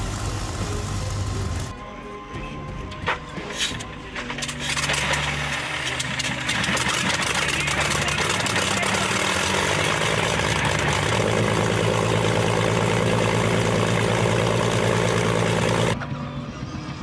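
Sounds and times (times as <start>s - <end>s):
aircraft engine droning: 0.0s - 1.7s, 7.5s - 17.0s.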